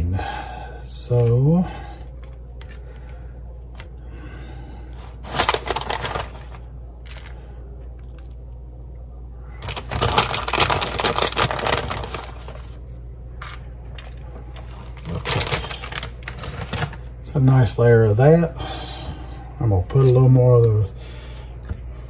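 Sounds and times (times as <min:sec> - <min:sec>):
food packaging crinkling: 0:05.0 - 0:08.4, 0:09.6 - 0:17.1.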